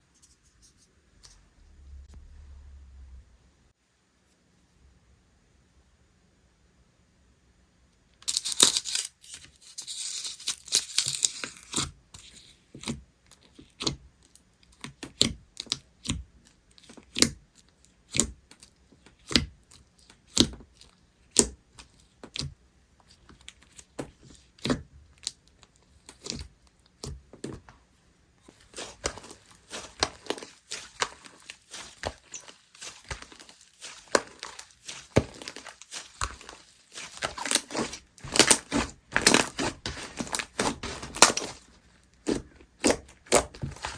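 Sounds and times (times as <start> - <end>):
slime crackling and popping: 28.5 - 43.9.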